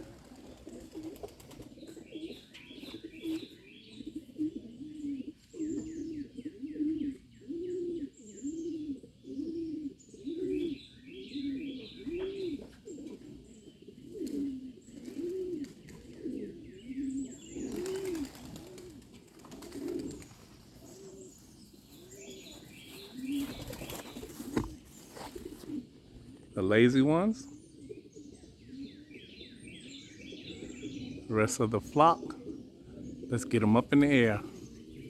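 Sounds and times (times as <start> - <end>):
bird chirps: 0.0 - 14.2, 14.8 - 18.8, 19.6 - 25.8, 26.5 - 35.0
pigeons cooing: 0.0 - 35.0.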